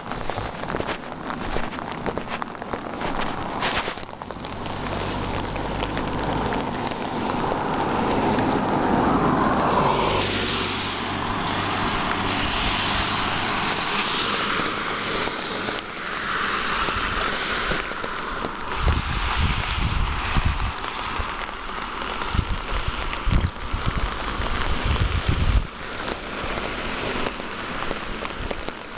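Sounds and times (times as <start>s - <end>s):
car passing on wet road: 0.0s - 28.9s.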